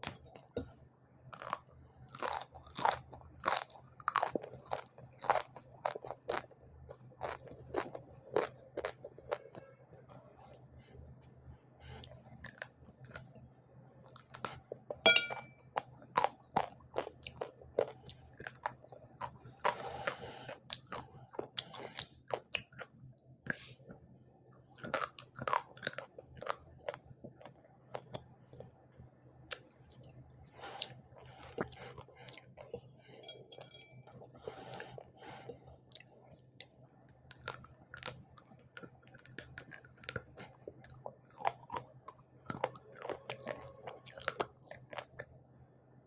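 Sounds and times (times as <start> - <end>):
chewing and crunching fish: 0.0 - 10.0, 11.8 - 13.4, 14.0 - 28.8, 29.5 - 45.4
bright clink: 15.1 - 15.6.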